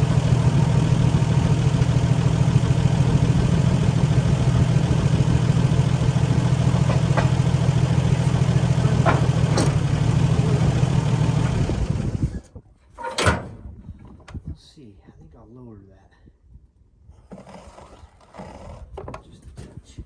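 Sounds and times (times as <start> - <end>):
engine idling: 0.0 - 12.4
light knocks: 6.8 - 9.9.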